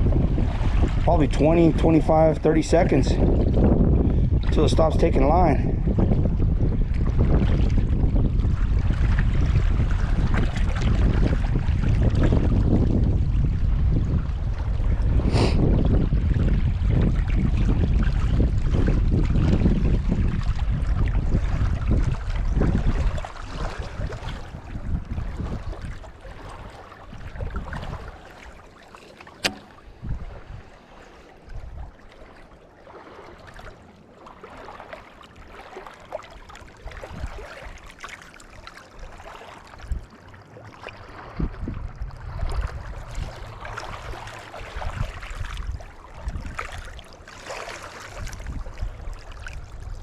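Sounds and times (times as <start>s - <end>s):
wind gusting across microphone: 0.0s - 28.4s, 29.4s - 30.8s, 41.1s - 46.9s, 48.1s - 50.0s
sharp click: 29.3s - 29.8s.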